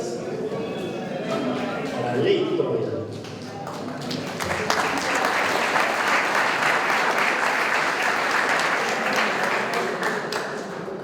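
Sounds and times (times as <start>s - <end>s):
audience clapping: 3.2s - 11.0s.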